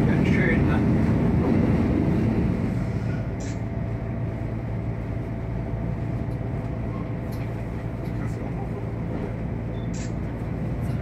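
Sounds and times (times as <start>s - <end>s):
railcar engine hum: 0.0s - 11.0s
wheels rumbling on rails: 0.0s - 11.0s.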